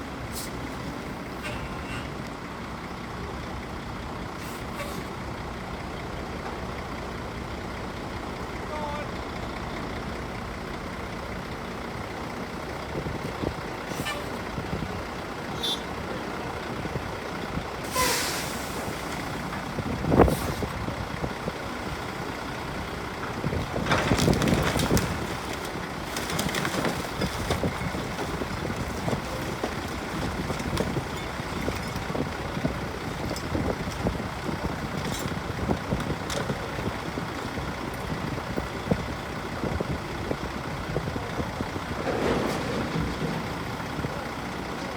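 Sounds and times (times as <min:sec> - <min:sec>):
heavy diesel equipment running: 0:00.0 - 0:44.9
building crashing down: 0:41.8 - 0:44.1.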